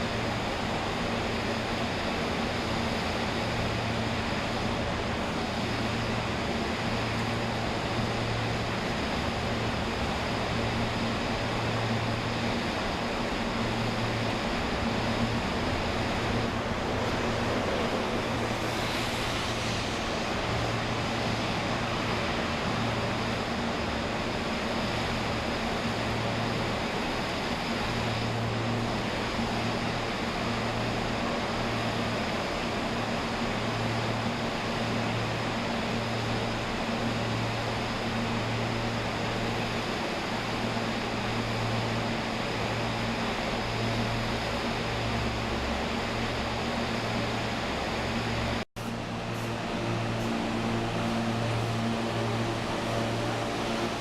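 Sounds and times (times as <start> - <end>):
train rumbling: 0.0 - 25.6, 47.6 - 54.0
low hum: 3.4 - 24.5, 48.8 - 54.0.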